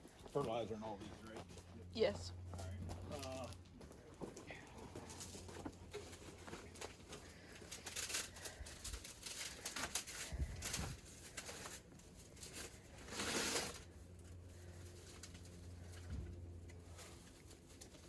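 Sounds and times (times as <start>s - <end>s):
plastic rustling and crinkling: 4.3s - 18.0s.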